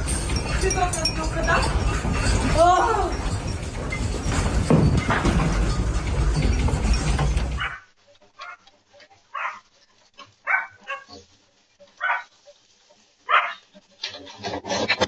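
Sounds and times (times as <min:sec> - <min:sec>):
dog barking: 0:07.6 - 0:08.6, 0:09.3 - 0:09.7, 0:10.4 - 0:11.2, 0:12.0 - 0:12.3, 0:13.3 - 0:13.6.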